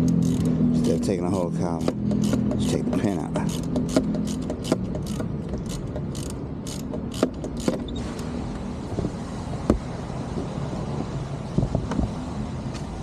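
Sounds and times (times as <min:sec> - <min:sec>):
hand tools clicking and knocking: 0:00.0 - 0:07.9
vehicle engine humming: 0:00.0 - 0:13.0.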